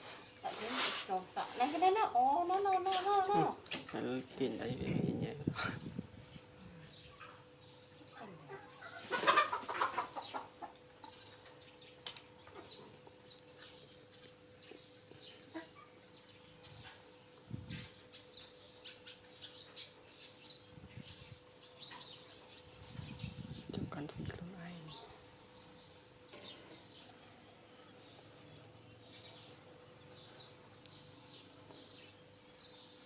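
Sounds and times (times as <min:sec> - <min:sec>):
animal clucks and chirps: 0:04.8 - 0:23.6.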